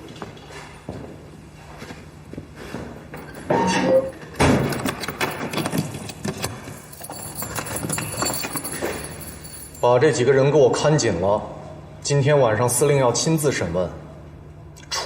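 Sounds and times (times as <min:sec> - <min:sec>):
keys jangling: 0:03.2 - 0:09.9
door clattering bang: 0:04.4 - 0:05.8.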